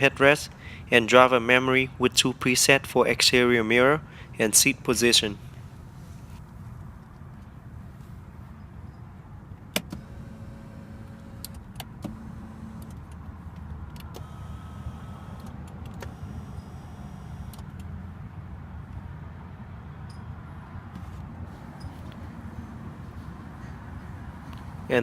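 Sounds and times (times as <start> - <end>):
power seat motors whirring: 9.8 - 17.9, 21.0 - 24.9.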